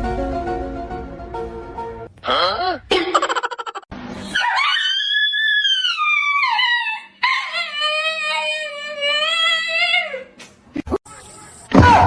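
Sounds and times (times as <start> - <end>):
dog howling: 4.4 - 10.0.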